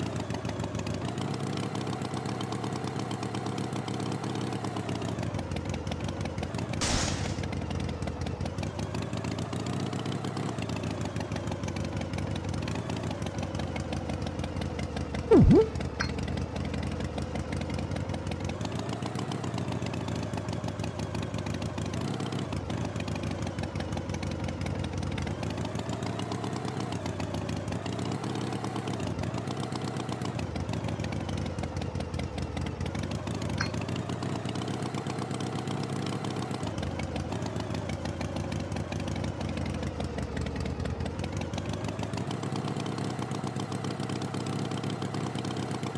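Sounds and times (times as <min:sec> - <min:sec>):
short hiss: 0:06.8 - 0:07.6
loud sound dropping in pitch: 0:15.3 - 0:15.8.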